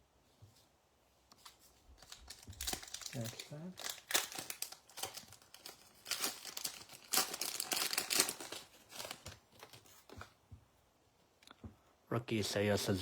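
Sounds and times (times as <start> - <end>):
wrapper tearing and crinkling: 1.4 - 10.2.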